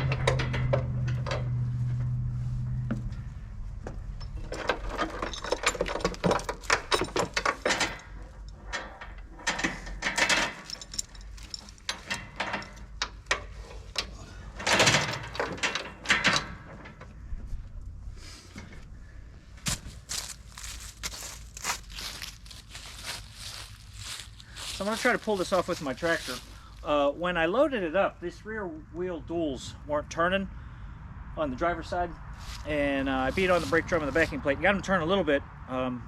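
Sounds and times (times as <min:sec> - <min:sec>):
metal hardware clanking: 0:00.0 - 0:01.7, 0:04.1 - 0:17.1.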